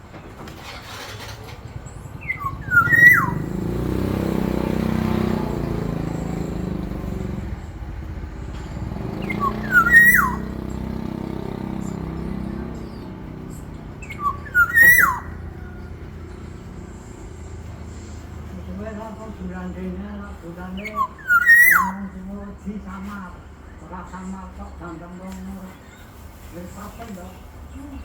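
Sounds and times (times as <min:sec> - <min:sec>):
vehicle engine drone: 0:00.0 - 0:25.0
bird whistling fluty phrases: 0:02.2 - 0:05.8, 0:09.0 - 0:11.0, 0:14.0 - 0:15.8, 0:20.8 - 0:22.2.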